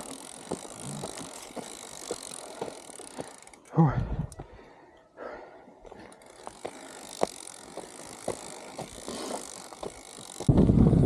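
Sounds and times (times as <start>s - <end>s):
bicycle clicks and knocks: 0.0s - 4.5s, 5.8s - 11.0s
wind buffeting microphone: 10.4s - 11.0s.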